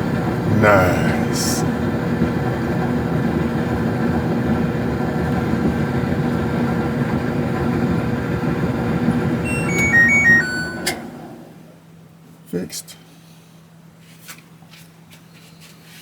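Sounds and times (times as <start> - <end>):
electronic beeps tune: 9.5 - 11.0.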